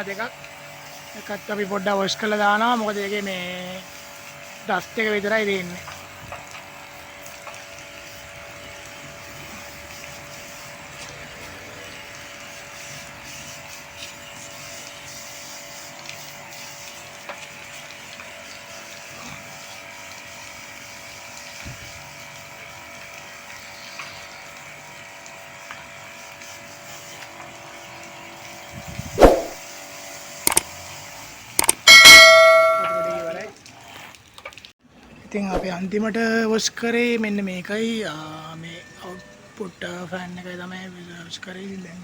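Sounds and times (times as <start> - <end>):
loud metallic clang: 31.6 - 33.4.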